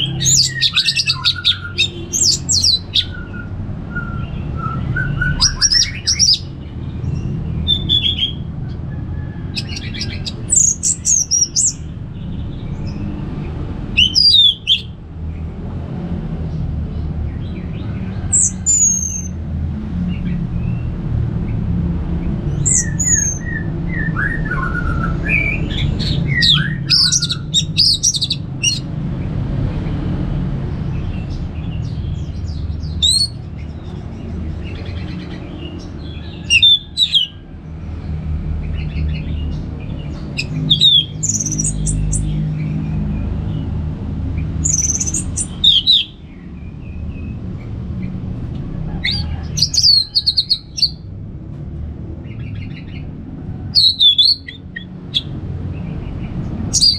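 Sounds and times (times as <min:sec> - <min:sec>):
thrush singing whistles and trills: 0:00.0 - 0:06.6, 0:07.2 - 0:08.5, 0:09.5 - 0:11.9, 0:14.0 - 0:14.9, 0:22.6 - 0:28.9, 0:32.9 - 0:33.5, 0:36.0 - 0:37.4, 0:40.3 - 0:42.4, 0:44.6 - 0:46.4, 0:53.8 - 0:55.3, 0:56.7 - 0:56.9.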